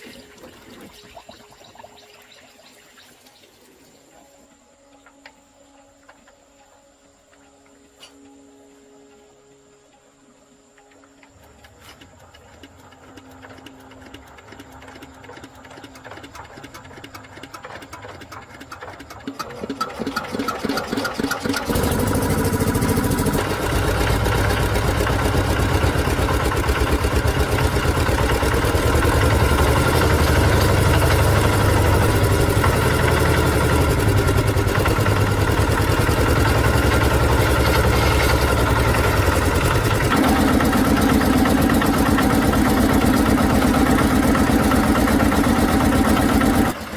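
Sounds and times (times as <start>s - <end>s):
engine cranking and starting: 10.7s - 46.9s.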